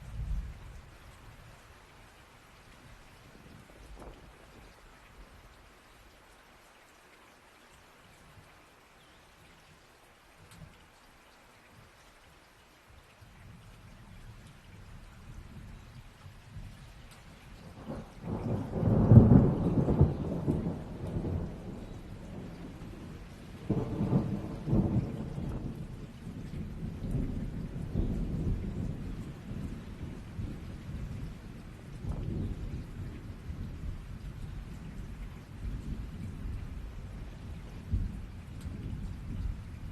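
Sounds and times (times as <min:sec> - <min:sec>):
steady rain: 0:00.0 - 0:39.9
rolling thunder: 0:17.6 - 0:39.9.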